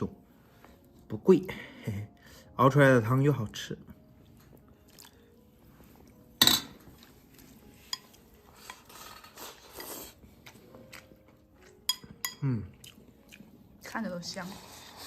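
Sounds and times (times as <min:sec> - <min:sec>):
spoon clinking against bowl: 0:11.9 - 0:12.4.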